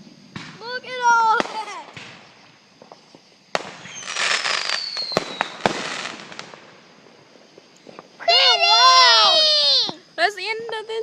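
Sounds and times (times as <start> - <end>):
firework bangs: 0.0 - 10.7
crackling hiss: 0.0 - 11.0
firework whistle falling: 3.6 - 6.2.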